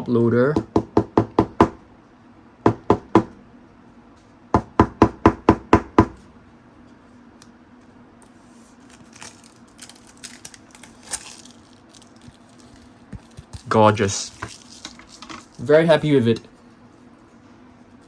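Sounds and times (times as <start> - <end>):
faint plastic rustling: 6.8 - 18.0.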